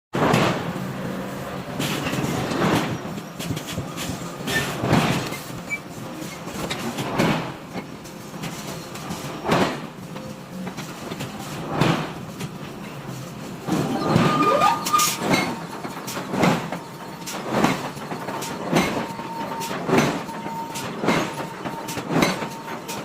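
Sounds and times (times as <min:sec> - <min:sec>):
forging machinery noisy swell: 0:13.0 - 0:23.0.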